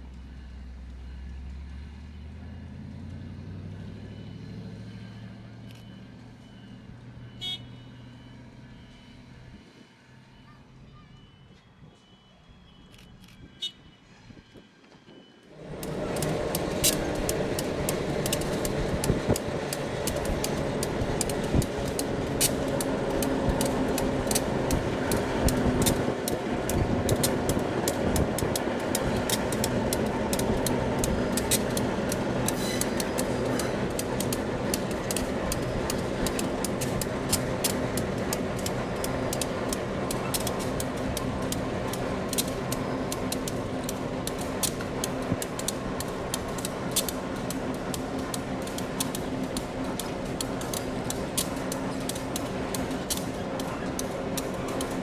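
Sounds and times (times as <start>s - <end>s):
diesel locomotive engine running: 0.0s - 55.0s
sharp clicks and knocks: 15.6s - 55.0s.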